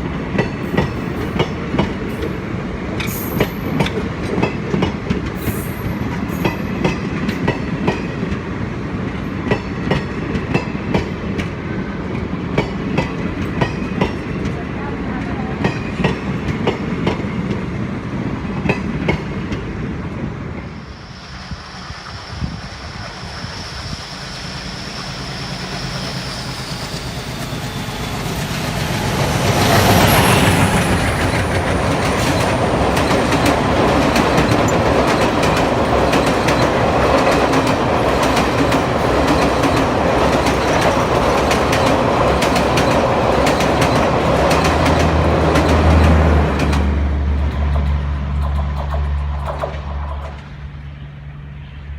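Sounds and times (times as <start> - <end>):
train rushing past: 0.0 - 51.9
thin high whine: 20.7 - 31.6.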